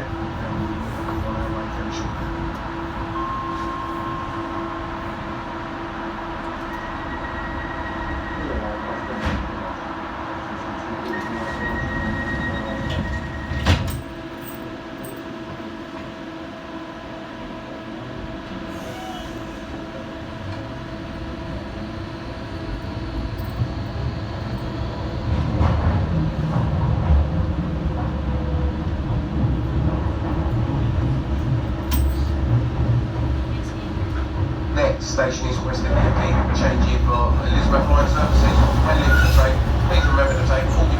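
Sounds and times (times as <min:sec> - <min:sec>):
train equipment humming: 0:00.0 - 0:40.9
train wheels rumbling: 0:18.8 - 0:40.9.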